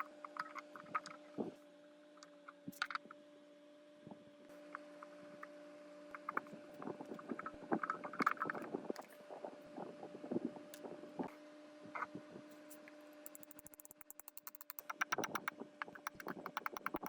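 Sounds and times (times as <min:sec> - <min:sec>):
short clicks and knocks: 0:13.3 - 0:17.0.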